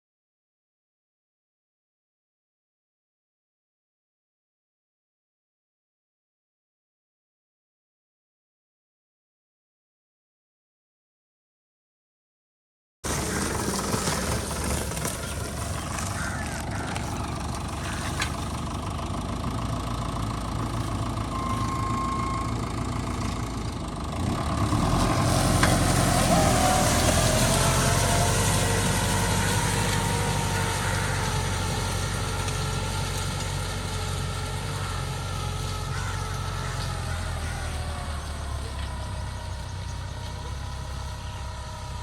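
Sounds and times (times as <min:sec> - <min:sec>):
tractor engine running: 0:13.0 - 0:42.0.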